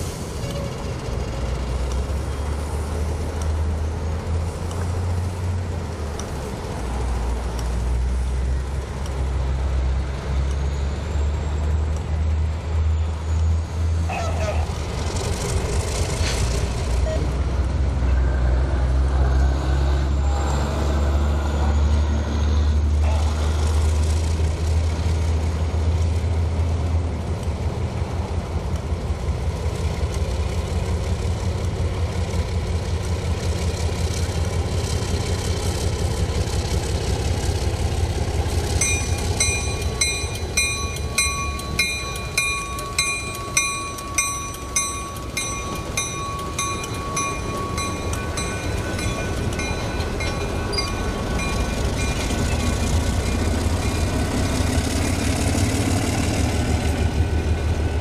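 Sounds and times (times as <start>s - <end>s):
diesel locomotive engine drone: 0.0s - 58.0s
train wheels clattering: 33.7s - 57.4s
bell ringing: 38.8s - 54.4s.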